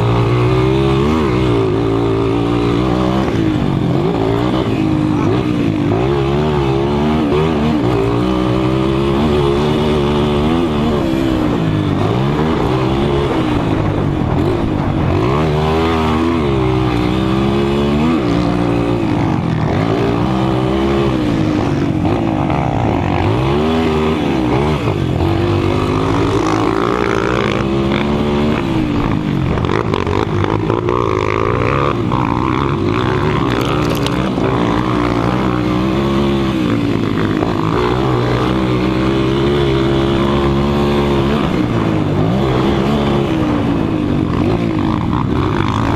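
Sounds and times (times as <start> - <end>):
motorcycle engines revving: 0.0 - 45.9.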